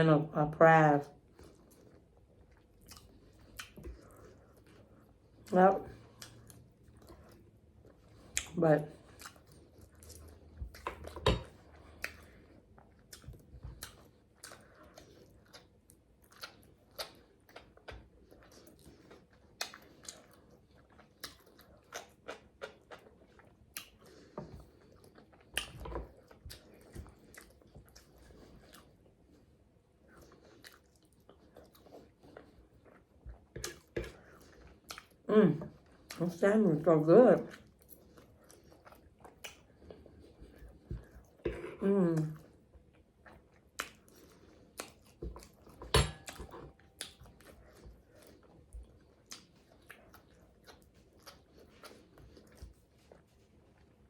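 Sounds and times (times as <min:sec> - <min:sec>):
chewing and lip-smacking: 0:01.2 - 0:41.6, 0:42.2 - 0:54.0.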